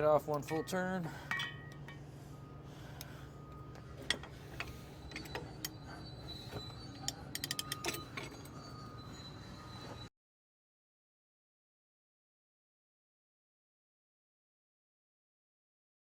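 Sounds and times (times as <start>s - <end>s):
steady low hum: 0.0s - 10.1s.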